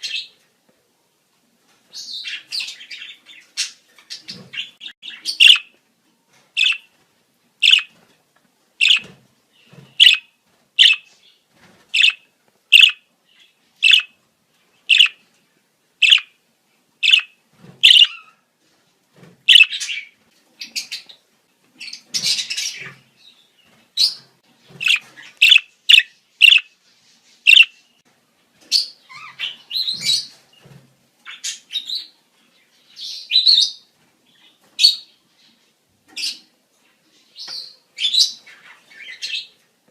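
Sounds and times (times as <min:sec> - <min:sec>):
budgerigars chirping and warbling: 0:02.0 - 0:05.7, 0:06.6 - 0:06.9, 0:07.6 - 0:08.0, 0:08.8 - 0:11.1, 0:12.0 - 0:14.2, 0:14.8 - 0:15.2, 0:16.0 - 0:16.3, 0:17.0 - 0:18.4, 0:19.5 - 0:21.2, 0:24.0 - 0:26.8, 0:27.5 - 0:27.8, 0:28.7 - 0:30.4.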